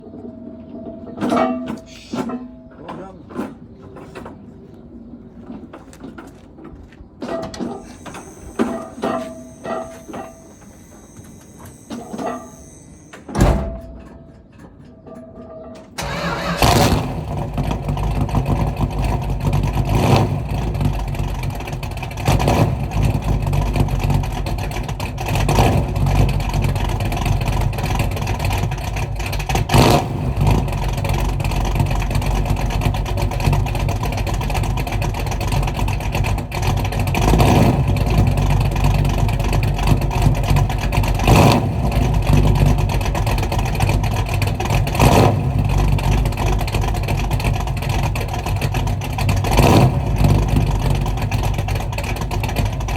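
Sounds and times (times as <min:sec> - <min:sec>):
engine throttle blips: 0:07.3 - 0:14.2, 0:16.0 - 0:52.9
car engine idling: 0:07.7 - 0:13.3, 0:16.0 - 0:29.7, 0:30.3 - 0:52.9.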